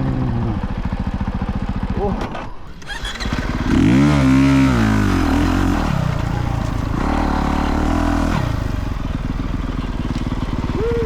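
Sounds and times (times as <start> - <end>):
dirt bike engine revving: 2.7 - 11.0.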